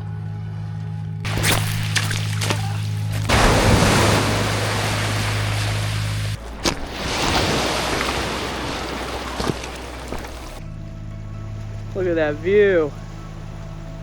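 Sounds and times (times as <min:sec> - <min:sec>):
low steady drone: 0:00.0 - 0:14.0
ocean surf washing ashore: 0:03.1 - 0:10.6.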